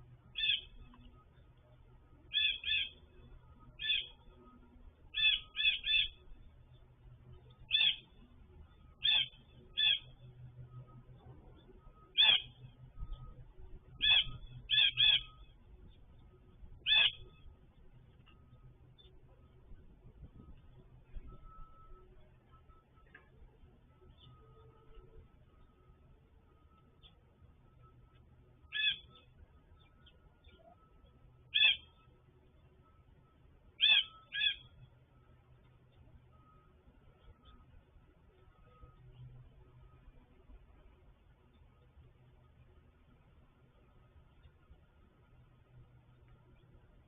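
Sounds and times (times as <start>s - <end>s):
bird calling: 0.3s - 6.8s, 7.4s - 19.5s, 28.6s - 32.1s, 33.7s - 34.9s
bird calling in short notes: 33.8s - 34.7s.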